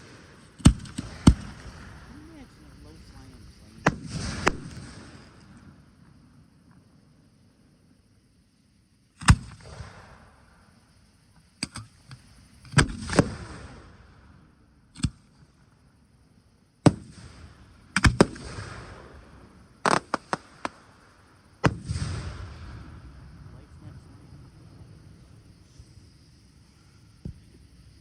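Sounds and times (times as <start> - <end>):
fireworks bangs: 0.0 - 5.8, 16.8 - 26.0.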